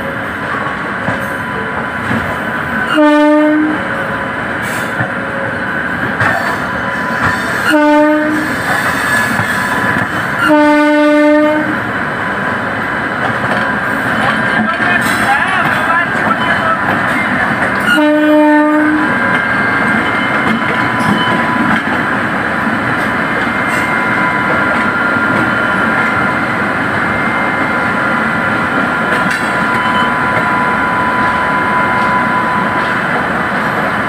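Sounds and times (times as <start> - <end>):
train wheels on rails: 0.0 - 34.0
locomotive horn blast: 2.9 - 3.8, 7.6 - 8.6, 10.4 - 11.8, 17.8 - 19.2.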